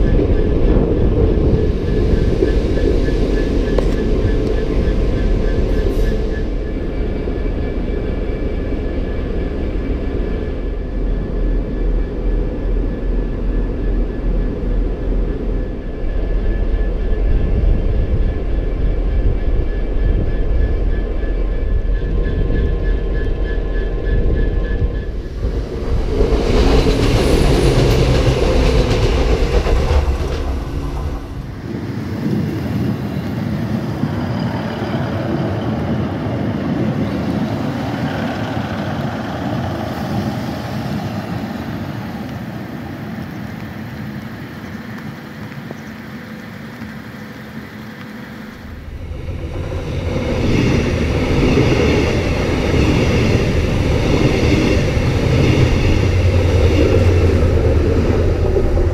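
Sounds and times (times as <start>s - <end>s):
diesel train over level crossing: 0.0s - 32.9s, 46.1s - 58.9s
diesel locomotive engine drone: 0.0s - 58.9s
thin steady whines: 0.0s - 58.9s
wheels rushing on rail: 0.0s - 58.9s.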